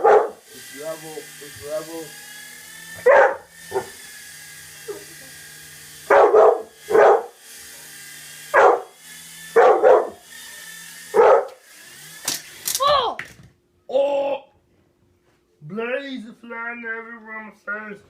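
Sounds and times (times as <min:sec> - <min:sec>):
dog barking: 0:00.0 - 0:00.4, 0:03.0 - 0:04.0, 0:06.1 - 0:07.4, 0:08.5 - 0:08.9, 0:09.6 - 0:10.2, 0:11.1 - 0:11.6
toy helicopter motor whine: 0:00.0 - 0:12.9.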